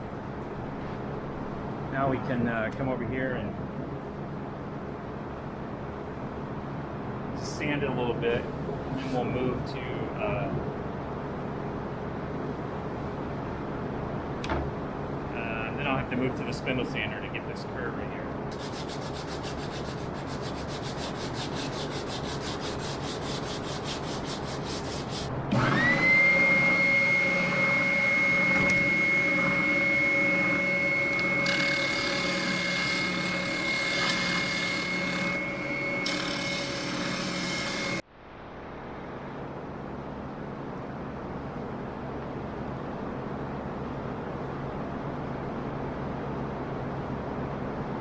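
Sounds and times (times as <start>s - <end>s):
sandpaper rubbing on plywood: 18.5s - 25.3s
wood grinding against sander drum: 18.5s - 38.0s
spindle sander motor whine: 25.5s - 38.0s.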